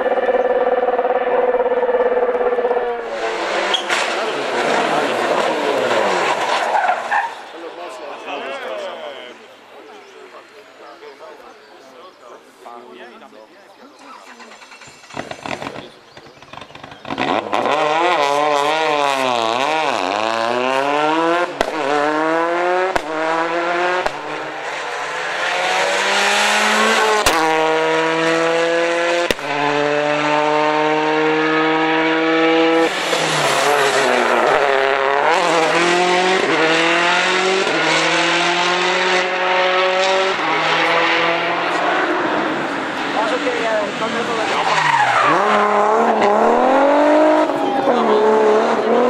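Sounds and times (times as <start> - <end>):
rally car engine revving: 0.0 - 7.5, 14.2 - 49.0
sharp cracks at gear changes: 22.9 - 23.3, 24.0 - 24.4, 29.2 - 29.6.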